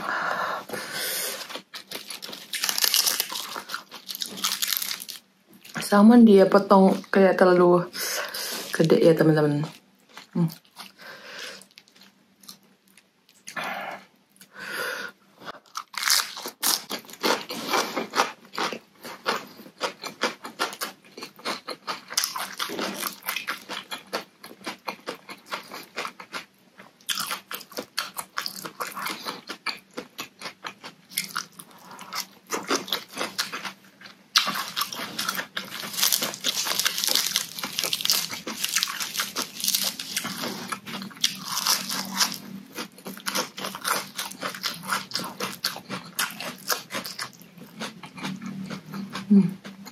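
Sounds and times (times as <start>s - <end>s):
crunchy salad chewing: 0.7s - 5.8s, 15.5s - 49.9s.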